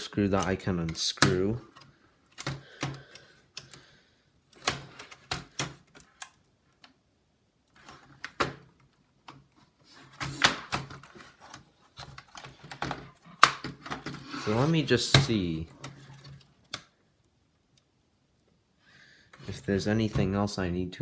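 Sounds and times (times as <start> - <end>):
plastic clips clicking and snapping: 0.0 - 3.9.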